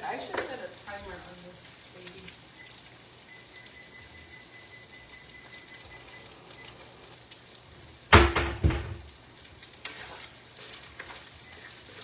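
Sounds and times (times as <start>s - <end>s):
food sizzling on stove: 0.0s - 12.0s
cookware clattering: 8.1s - 9.1s.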